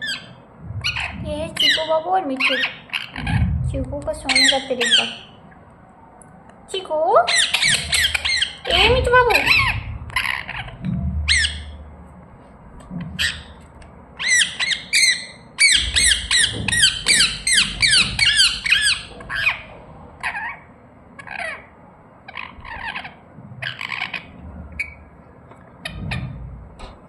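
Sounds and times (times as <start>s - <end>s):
parrot chirping squawks: 7.3s - 11.8s, 14.2s - 21.7s, 22.3s - 25.0s.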